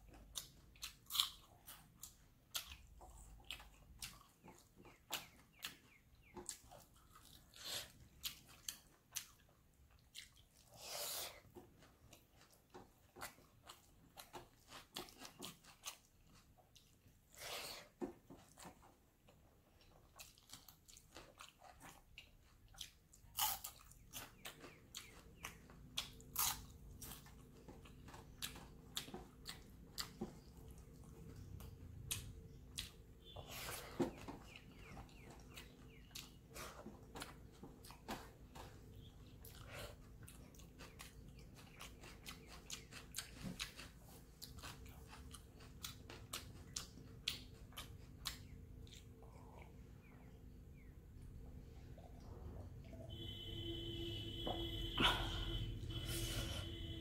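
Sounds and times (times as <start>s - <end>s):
faint low hum: 0.0s - 57.0s
person chewing with wet mouth clicks: 0.1s - 10.7s, 19.8s - 33.4s, 39.4s - 49.8s.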